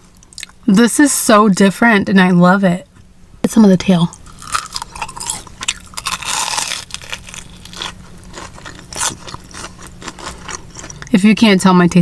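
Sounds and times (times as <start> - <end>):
crunchy food being chewed: 4.2 - 11.2.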